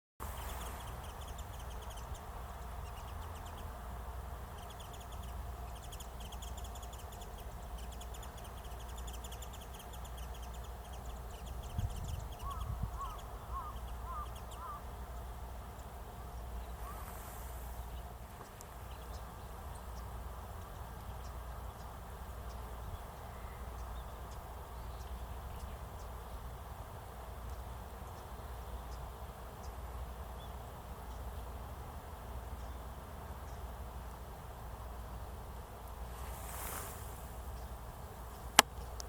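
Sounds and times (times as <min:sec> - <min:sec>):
wavering bird calls: 0:04.6 - 0:15.0, 0:16.2 - 0:17.4
steady low rumble: 0:32.2 - 0:39.0.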